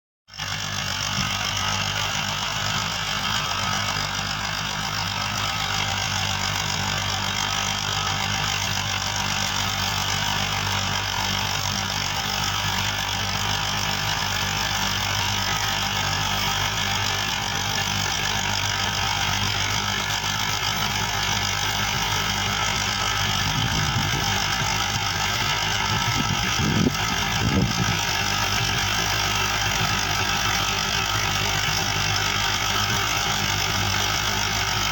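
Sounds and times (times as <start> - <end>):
tractor diesel engine running: 0.3 - 34.9
engine knocks: 0.4 - 34.9.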